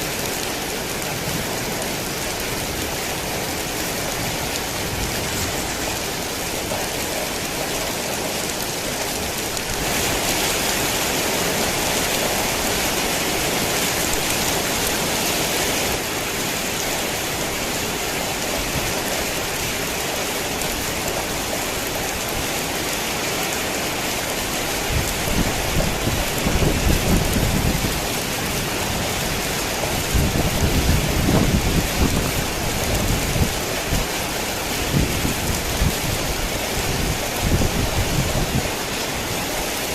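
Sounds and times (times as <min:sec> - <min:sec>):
heavy rain falling: 0:00.0 - 0:39.9
thunder rumbling: 0:24.4 - 0:38.8.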